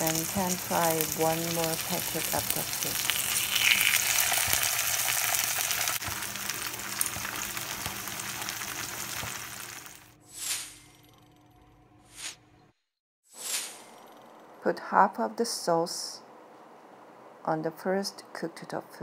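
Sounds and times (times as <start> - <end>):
tofu frying in oil: 0.0 - 10.1.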